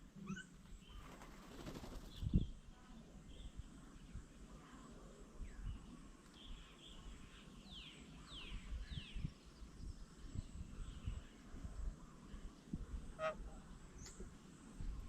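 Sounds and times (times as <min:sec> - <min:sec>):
small birds calling: 0:00.2 - 0:02.3.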